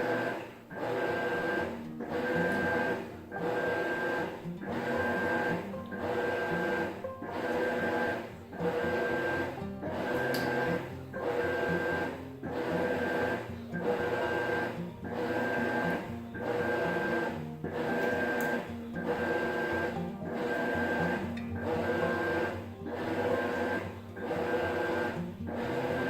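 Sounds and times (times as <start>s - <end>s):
washing machine agitating: 0.0s - 26.0s.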